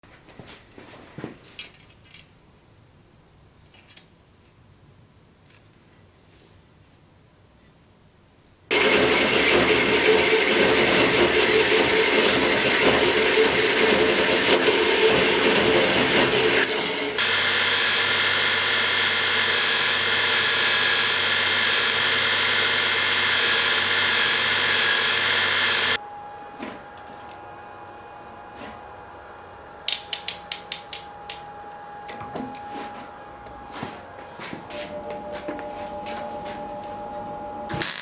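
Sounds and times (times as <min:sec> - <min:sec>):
power tool running: 0:08.7 - 0:26.0, 0:37.7 - 0:38.0.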